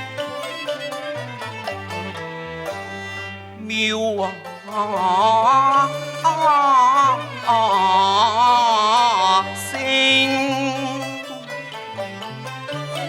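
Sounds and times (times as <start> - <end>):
bowed and plucked strings: 0.0 - 13.0
opera singing with vibrato: 3.6 - 11.3.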